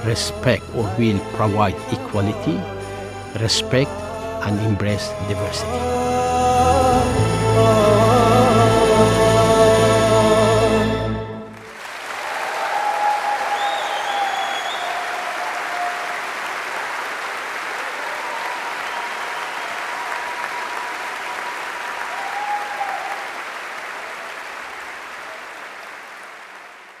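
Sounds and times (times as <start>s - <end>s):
audience applauding: 11.4s - 27.0s.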